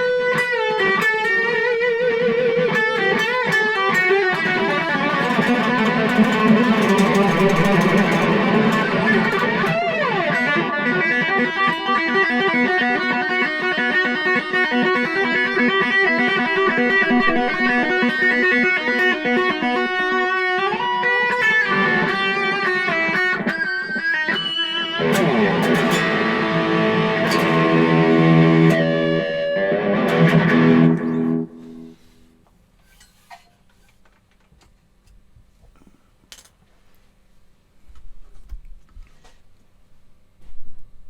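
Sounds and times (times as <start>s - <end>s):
electric guitar playing: 0.0s - 32.4s.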